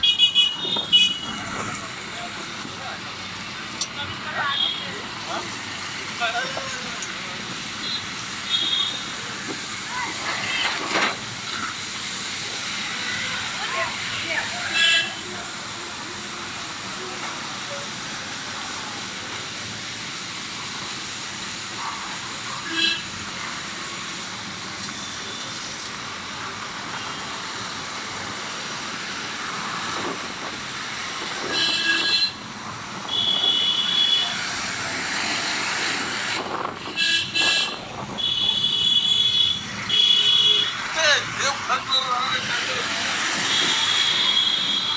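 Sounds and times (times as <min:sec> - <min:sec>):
vehicle horn honking: 0:00.0 - 0:01.4, 0:22.7 - 0:23.1, 0:31.5 - 0:32.4, 0:33.1 - 0:34.4, 0:36.8 - 0:40.8, 0:43.5 - 0:44.9
traffic noise: 0:00.0 - 0:44.9.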